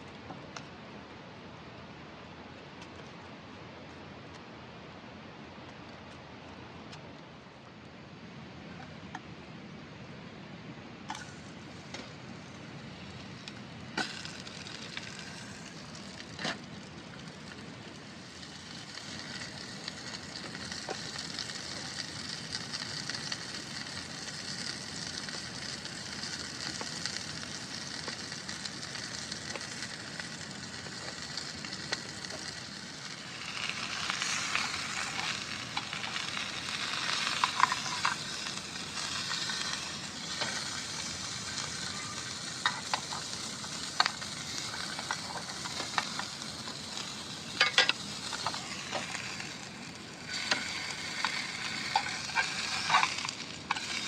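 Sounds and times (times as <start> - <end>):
food sizzling in a pan: 11.1 - 54.0.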